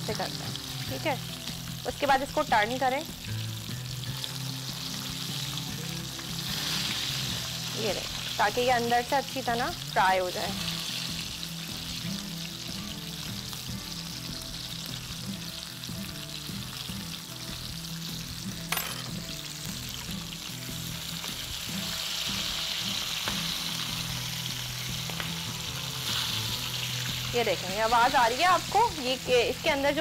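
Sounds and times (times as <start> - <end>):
chicken sizzling in oil: 0.0 - 30.0.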